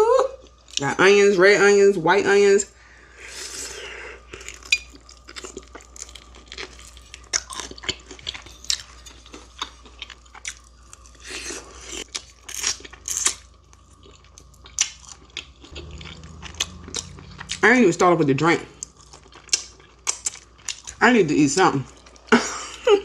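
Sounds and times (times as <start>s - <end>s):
crunching fried chicken: 4.2s - 21.0s.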